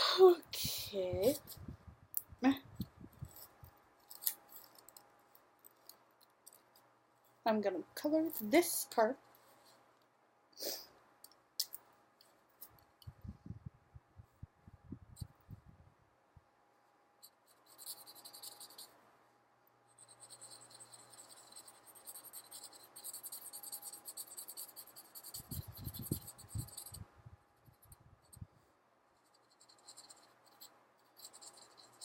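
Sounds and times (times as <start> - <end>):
marker scratching on paper: 17.2 - 19.0, 20.0 - 27.0, 29.2 - 32.0.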